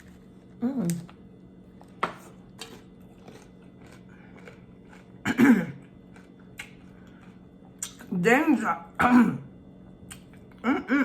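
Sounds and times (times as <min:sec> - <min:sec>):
person chewing crunchy food: 0:00.0 - 0:08.1.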